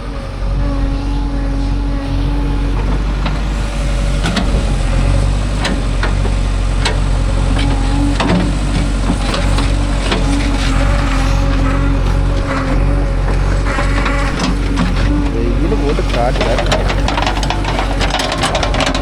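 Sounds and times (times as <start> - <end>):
diesel engine running: 0.0 - 19.0
sharp knocks and clanks: 4.2 - 19.0.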